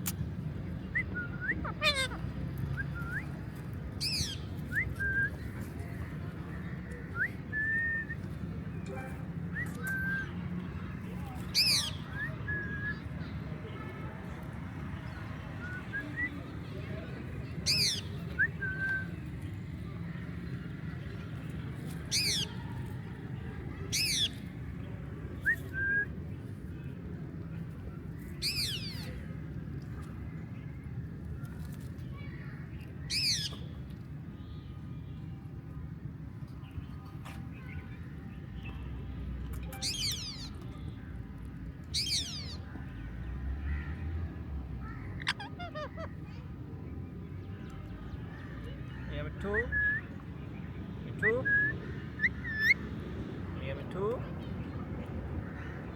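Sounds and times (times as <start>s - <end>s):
parrot squawking: 1.6s - 2.2s, 45.2s - 46.2s.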